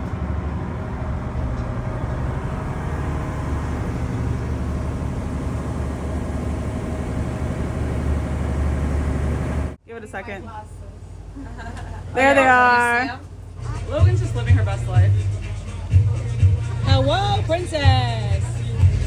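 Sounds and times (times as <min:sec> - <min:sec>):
road or water noise: 0:00.0 - 0:15.0
vehicle engine rumbling: 0:00.0 - 0:19.0.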